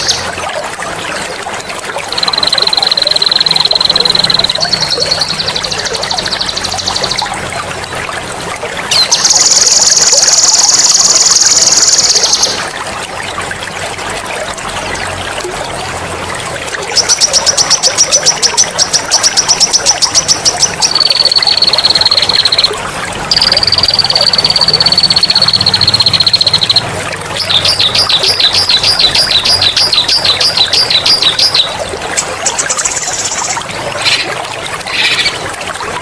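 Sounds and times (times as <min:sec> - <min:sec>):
trickle of running water: 0:00.0 - 0:36.0
songbird singing trills: 0:02.1 - 0:07.4, 0:08.9 - 0:12.6, 0:17.0 - 0:26.8, 0:27.4 - 0:31.8.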